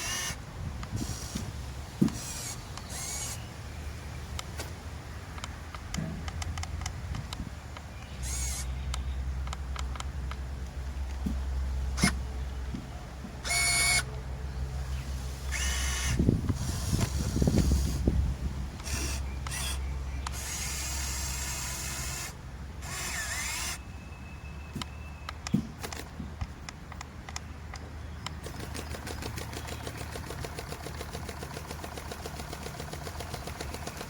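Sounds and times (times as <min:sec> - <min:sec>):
toy motors whirring: 0:00.0 - 0:03.4, 0:08.2 - 0:08.7, 0:13.4 - 0:14.1, 0:15.5 - 0:18.1, 0:18.8 - 0:23.8, 0:28.4 - 0:34.0.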